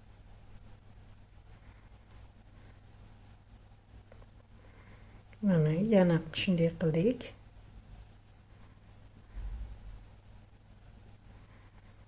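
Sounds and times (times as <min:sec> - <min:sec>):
knitting needles and yarn handling: 0:00.0 - 0:09.2, 0:09.8 - 0:12.0
low steady hum: 0:00.0 - 0:12.0.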